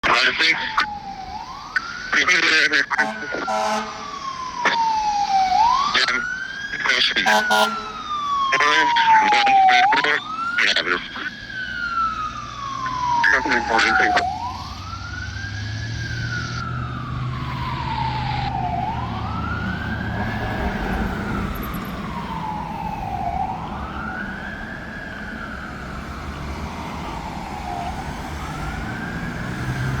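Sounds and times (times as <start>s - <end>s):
fire engine siren wailing: 0.0s - 30.0s
truck engine hum: 0.0s - 30.0s.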